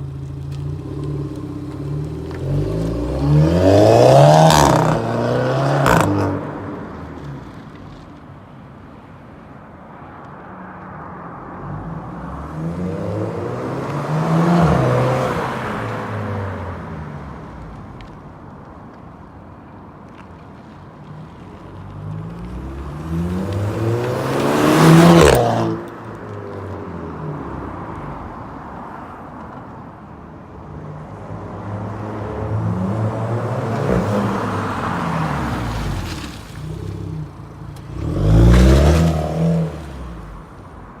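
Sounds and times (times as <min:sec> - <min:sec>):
car engine revving: 0:00.0 - 0:06.7, 0:31.7 - 0:40.6.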